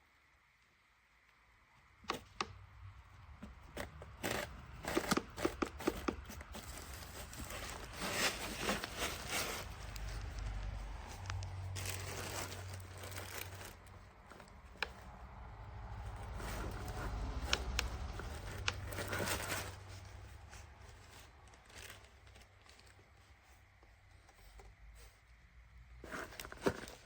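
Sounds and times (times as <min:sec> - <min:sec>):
packaging rustling and crinkling: 0:03.4 - 0:25.2, 0:26.0 - 0:27.0.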